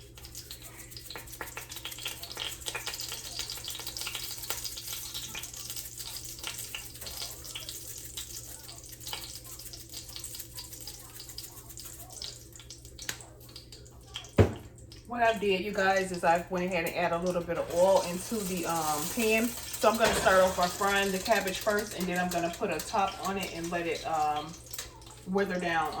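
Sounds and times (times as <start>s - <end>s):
oil sizzling in a frying pan: 0.0s - 26.0s
sharp knock: 14.4s - 14.7s.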